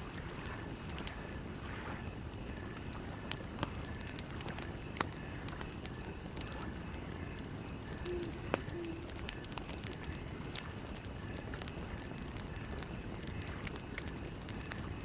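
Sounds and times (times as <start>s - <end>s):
campfire crackling: 0.0s - 15.0s
burning wood popping: 2.6s - 15.0s.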